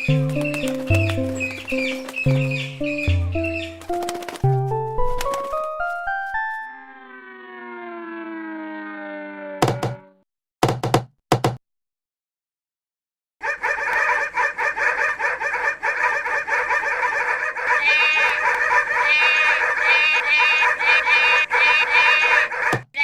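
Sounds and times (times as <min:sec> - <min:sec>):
flock of birds clucking: 0:13.4 - 0:23.0
sharp bird squawks: 0:16.0 - 0:23.0.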